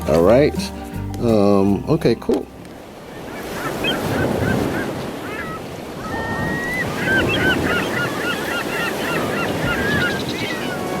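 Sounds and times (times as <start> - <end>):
flock of birds squawking: 2.8 - 11.0.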